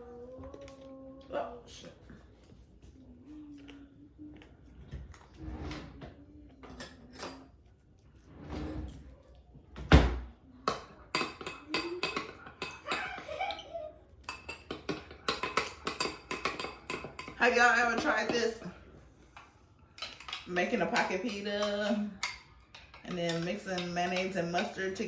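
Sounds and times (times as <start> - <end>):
spoon scraping a bowl: 19.4 - 25.0.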